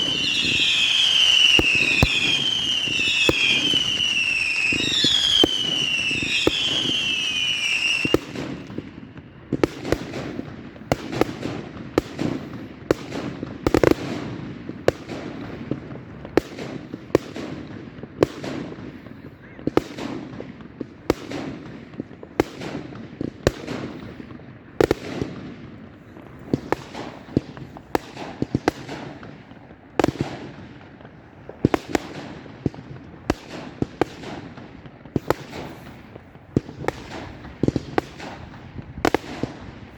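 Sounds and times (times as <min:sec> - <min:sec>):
fireworks whistling: 0:00.0 - 0:11.5, 0:33.2 - 0:39.9
fireworks bangs: 0:00.0 - 0:39.9.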